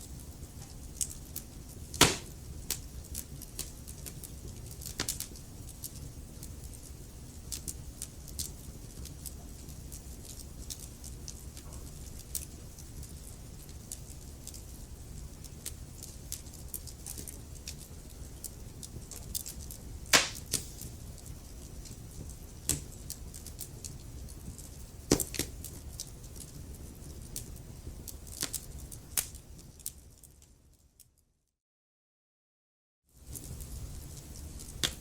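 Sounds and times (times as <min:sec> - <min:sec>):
low fire rumble: 0:00.0 - 0:30.7, 0:33.2 - 0:35.0
wood fire crackling: 0:00.0 - 0:31.1, 0:33.2 - 0:35.0
loud fire pops: 0:01.9 - 0:02.8, 0:20.1 - 0:20.9, 0:25.0 - 0:25.5.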